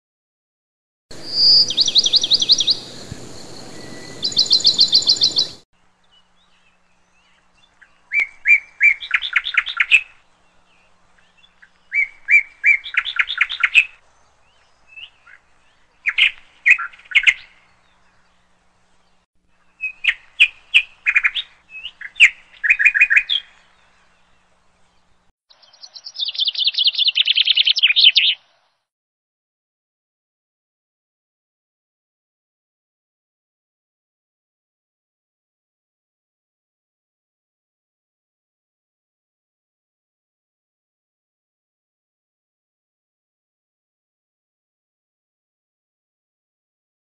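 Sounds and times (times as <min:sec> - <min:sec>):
songbird chirping: 0:01.1 - 0:28.9.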